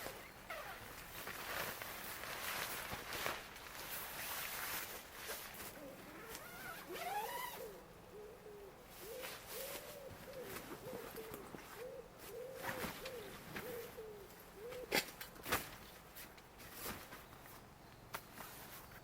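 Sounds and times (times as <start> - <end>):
bird calling: 5.7 - 15.0.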